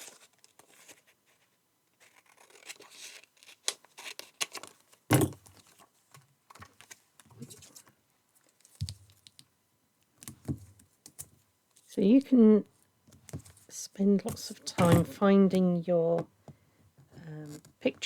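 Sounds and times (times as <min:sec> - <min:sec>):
paper rustling and scraping: 0:00.0 - 0:05.9.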